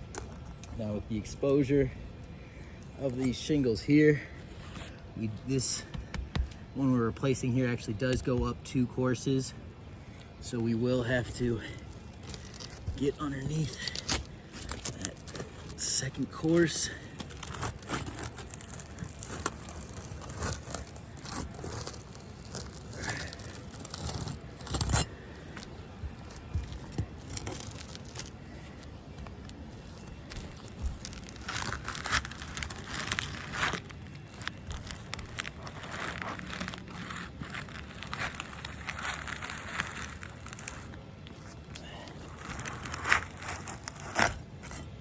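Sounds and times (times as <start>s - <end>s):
roof shingles scraping and crackling: 10.1s - 45.0s.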